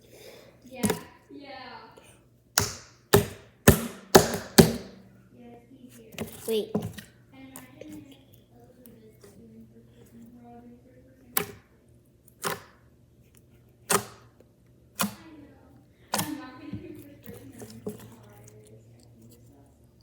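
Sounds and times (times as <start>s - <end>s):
sharp smacks: 2.6s - 5.0s.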